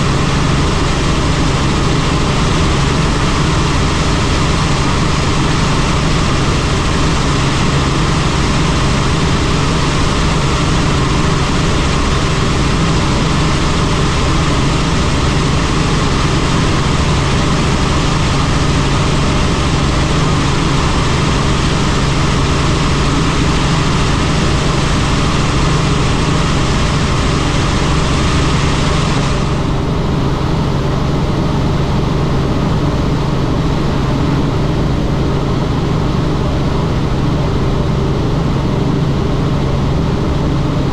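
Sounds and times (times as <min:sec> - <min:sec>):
helicopter turbine and rotor drone: 0:00.0 - 0:40.9.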